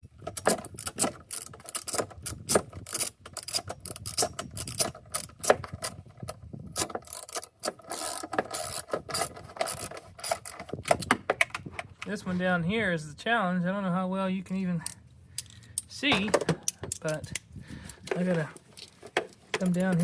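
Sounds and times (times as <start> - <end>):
ratchet wrench clicking: 0.7 - 5.9, 6.8 - 10.6, 19.6 - 20.0.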